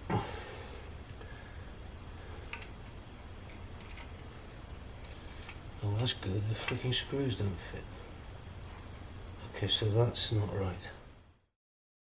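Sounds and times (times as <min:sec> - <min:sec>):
steady low hum: 0:00.0 - 0:11.5
light clicks of parts handled: 0:02.4 - 0:05.7.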